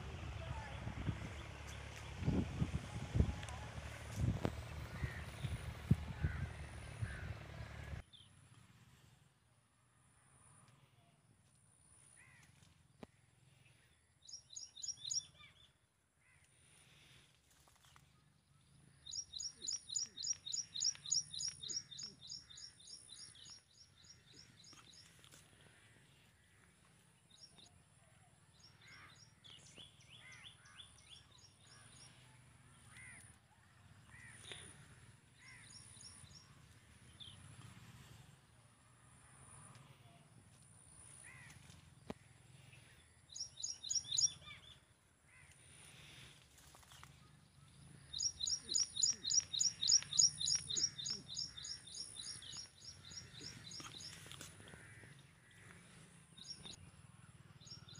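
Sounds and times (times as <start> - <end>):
small birds chirping: 13.6 - 15.8, 17.8 - 27.8, 34.0 - 37.8, 39.6 - 57.9.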